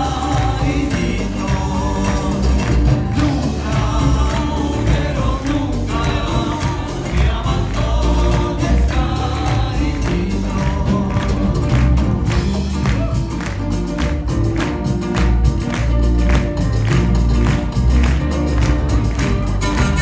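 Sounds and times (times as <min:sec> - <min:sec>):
voices singing together: 0:00.0 - 0:12.3
heavy bass: 0:00.0 - 0:20.0
steady percussion: 0:00.0 - 0:20.0.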